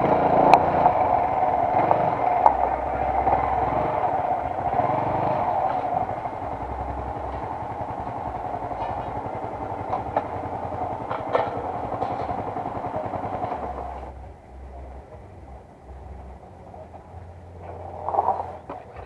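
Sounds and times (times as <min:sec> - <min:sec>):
motorcycle engine running slowly: 0:00.0 - 0:19.0
tyres on gravel: 0:17.6 - 0:19.0.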